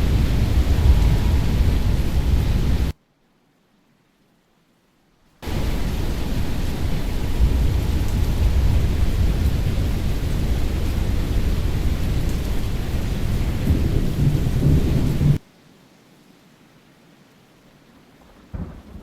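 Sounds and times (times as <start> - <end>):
low thunder rumble: 0.0 - 2.9, 5.4 - 15.4, 18.5 - 19.0
rain: 0.0 - 19.0.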